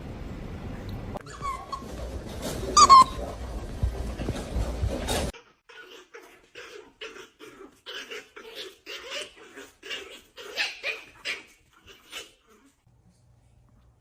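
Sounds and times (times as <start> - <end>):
dog whining: 1.2 - 2.0, 2.8 - 3.3.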